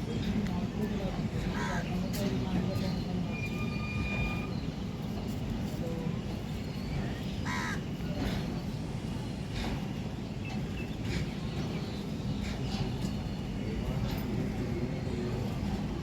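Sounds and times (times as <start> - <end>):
crow cawing: 7.4 - 7.8.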